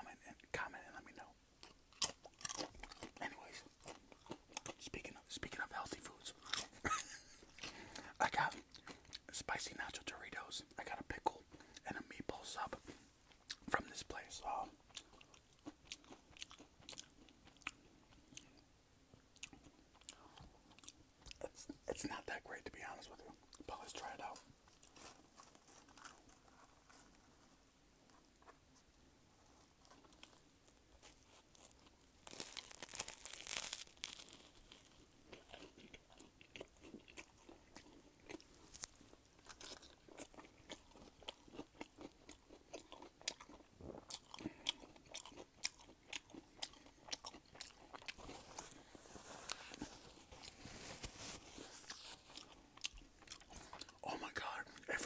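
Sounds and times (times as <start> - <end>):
open-mouthed chewing: 1.2 - 10.0, 11.2 - 18.7, 19.4 - 21.9, 29.4 - 55.0
crunchy bite into sandwich: 1.6 - 4.8, 31.0 - 54.0.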